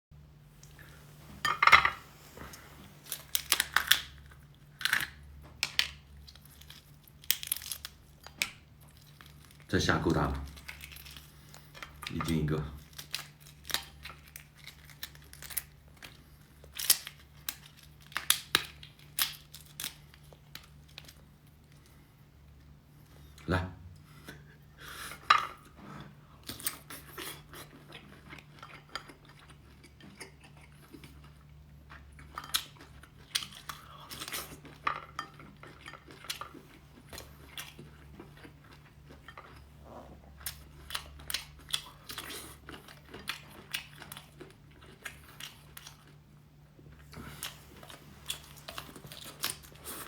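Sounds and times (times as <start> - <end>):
dishes and utensils clinking: 1.4 - 2.1
seafood shells cracking and crunching: 2.5 - 9.7, 10.4 - 21.8, 47.4 - 49.9
chewing: 25.5 - 50.0.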